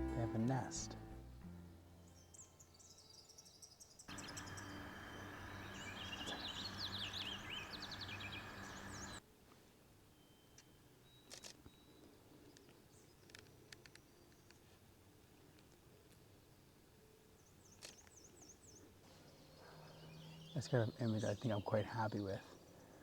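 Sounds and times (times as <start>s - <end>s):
background hiss: 0.0s - 2.6s, 4.1s - 10.0s
small birds chirping: 2.1s - 9.2s, 17.4s - 23.0s.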